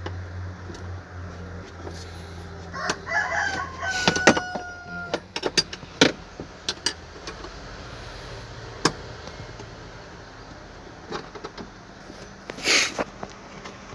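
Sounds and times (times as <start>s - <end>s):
rooster crowing: 2.4s - 5.4s.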